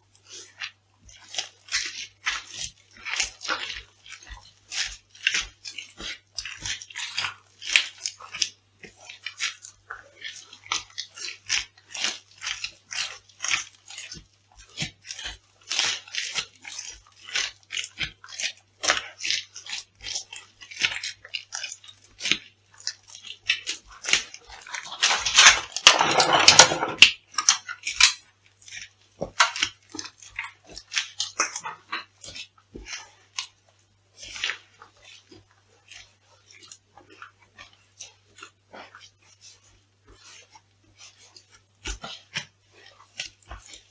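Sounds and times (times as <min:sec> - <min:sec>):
crisp food crunching underfoot: 0:15.1 - 0:33.6.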